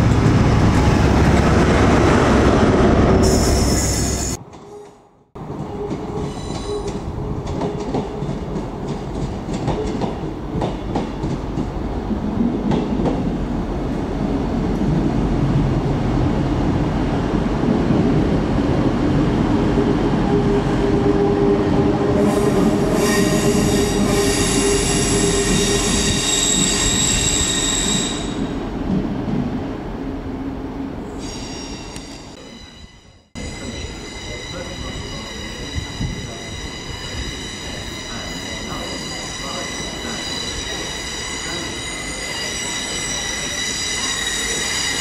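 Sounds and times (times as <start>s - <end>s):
train rumbling: 0.0s - 45.0s
train wheel squeal: 3.2s - 5.0s, 5.6s - 7.0s, 22.2s - 28.5s, 31.2s - 45.0s.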